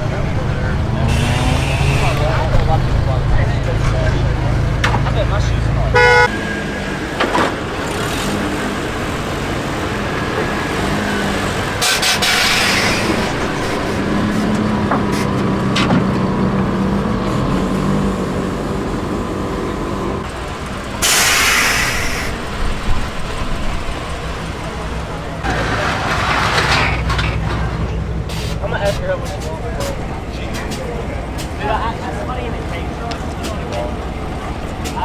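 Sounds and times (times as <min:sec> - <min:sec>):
mini truck engines running: 0:00.0 - 0:35.0
loud hisses of air: 0:21.0 - 0:22.4.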